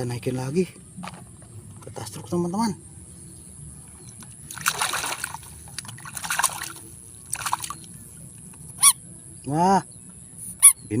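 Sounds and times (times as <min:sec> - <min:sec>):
water splashing on plastic toy: 0:04.5 - 0:07.9.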